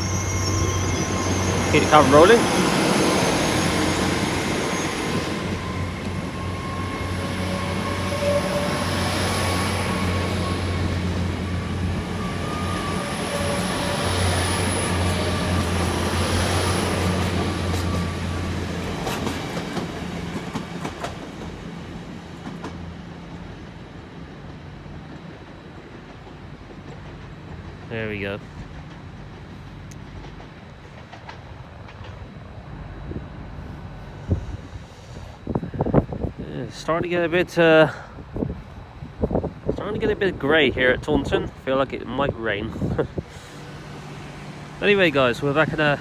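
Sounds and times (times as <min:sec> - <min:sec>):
train diesel engine drone: 0:00.0 - 0:46.0
train wheels clicking over rail joints: 0:00.5 - 0:32.6.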